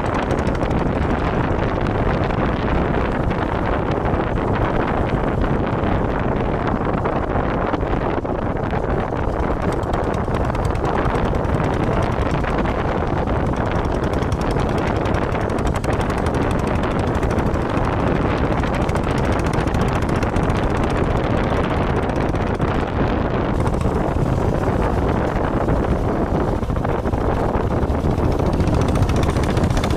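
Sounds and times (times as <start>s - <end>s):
motorcycle engine running: 0.0s - 29.9s
road noise: 0.0s - 29.9s
wind buffeting microphone: 0.0s - 29.9s.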